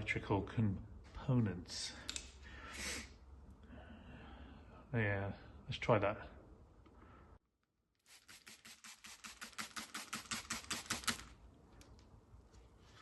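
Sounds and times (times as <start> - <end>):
spray bottle hissing squirts: 8.1 - 11.3.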